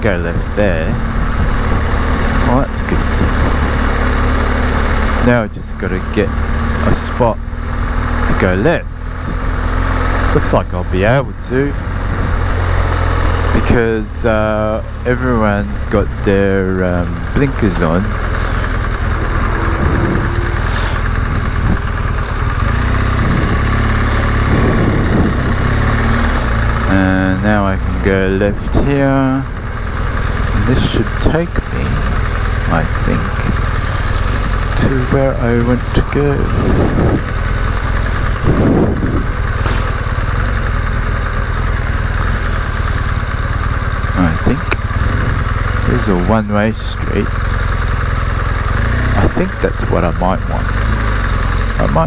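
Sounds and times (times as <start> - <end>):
motorcycle engine at low revs: 0.0 - 52.0
wind noise: 0.3 - 2.3, 17.5 - 27.0, 30.5 - 37.5, 38.2 - 40.0.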